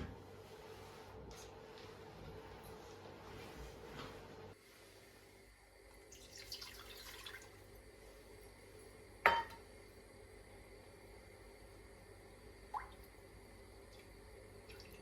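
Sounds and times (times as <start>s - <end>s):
glass clinking: 9.3s - 9.6s.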